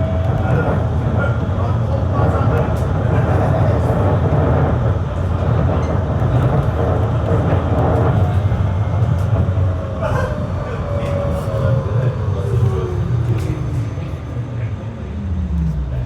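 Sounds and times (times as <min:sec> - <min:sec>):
tram wheels rolling on rails: 0:00.0 - 0:16.0.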